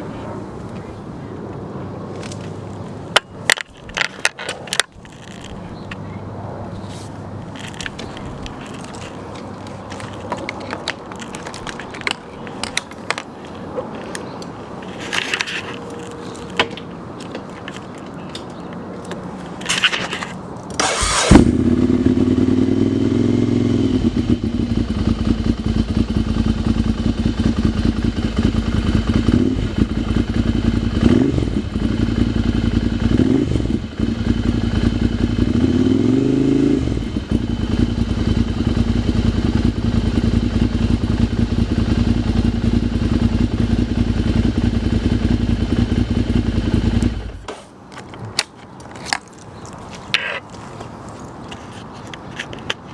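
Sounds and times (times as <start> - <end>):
clicks and handling noises: 1.5 - 21.0, 47.5 - 52.9
motorcycle engine starting with bang: 20.8 - 36.0
motorcycle engine idling: 21.0 - 33.1, 37.0 - 47.4.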